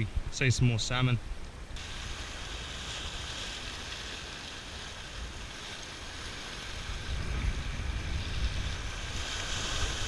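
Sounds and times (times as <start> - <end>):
sea washing on rocks: 1.8 - 10.0
wind buffeting microphone: 4.7 - 10.0.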